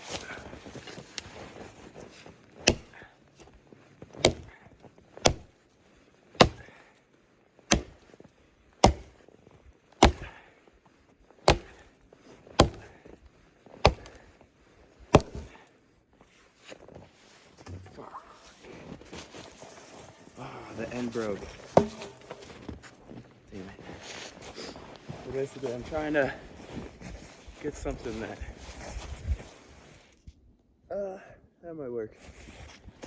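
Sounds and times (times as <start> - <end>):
axe chopping wood: 2.6 - 3.1, 4.2 - 4.6, 5.2 - 5.5, 6.4 - 6.8, 7.7 - 8.0, 8.8 - 9.2, 10.0 - 10.4, 11.5 - 11.9, 12.6 - 13.0, 13.8 - 14.2, 15.1 - 15.6, 21.7 - 22.4.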